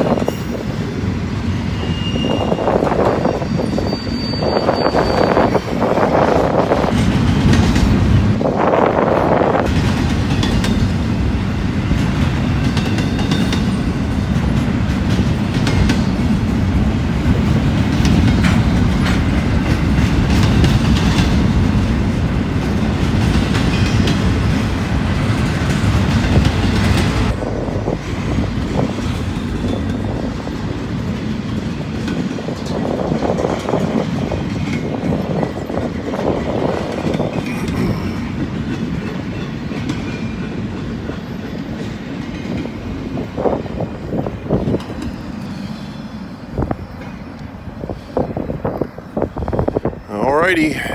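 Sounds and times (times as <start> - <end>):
freight train cars rolling: 0.0 - 50.9
wheels clattering over rail joints: 9.5 - 37.6.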